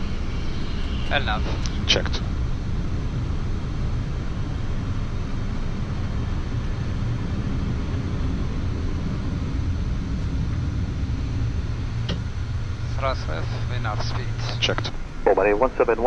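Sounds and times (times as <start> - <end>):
cockpit airflow and engine rumble: 0.0 - 16.0.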